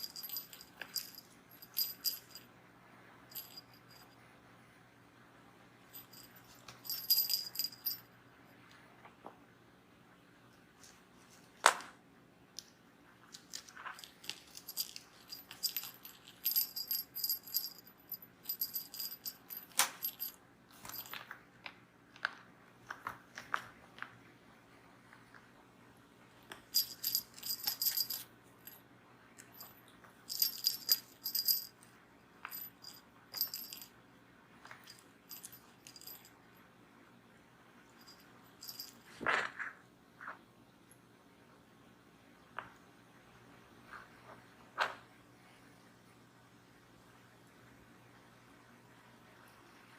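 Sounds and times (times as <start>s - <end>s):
cat toy bell jingling: 0.0s - 2.4s, 3.3s - 4.1s, 5.9s - 8.0s, 14.0s - 21.2s, 26.7s - 28.8s, 29.4s - 31.7s, 32.5s - 33.9s, 34.8s - 36.3s, 38.0s - 39.1s.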